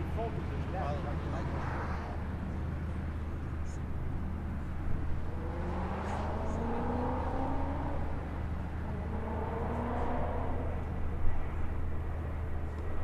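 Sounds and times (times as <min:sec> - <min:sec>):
low drone: 0:00.0 - 0:13.0
car engine accelerating: 0:04.4 - 0:12.0.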